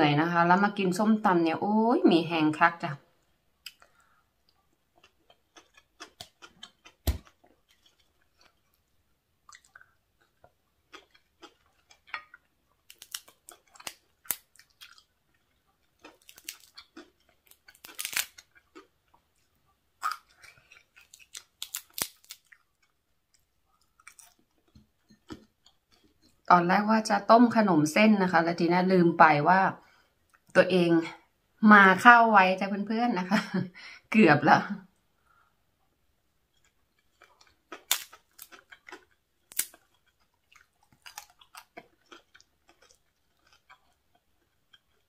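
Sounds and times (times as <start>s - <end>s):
chewing and crunching: 3.6s - 26.5s, 36.5s - 45.0s.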